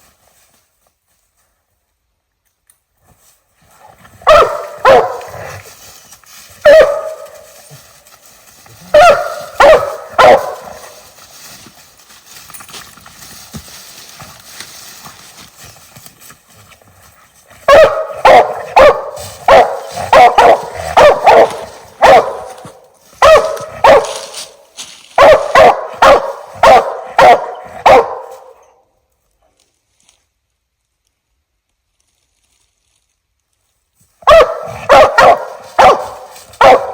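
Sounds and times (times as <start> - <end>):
dog barking: 4.2 - 5.6, 6.6 - 7.5, 8.8 - 11.0, 17.6 - 24.6, 25.2 - 28.6, 34.2 - 36.9.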